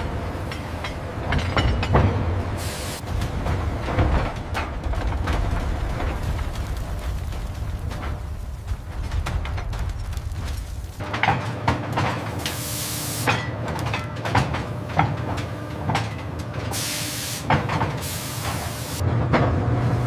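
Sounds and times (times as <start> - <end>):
metal clanks: 0.4 - 2.3
hiss bursts: 2.6 - 3.0, 12.4 - 13.3, 16.8 - 19.0.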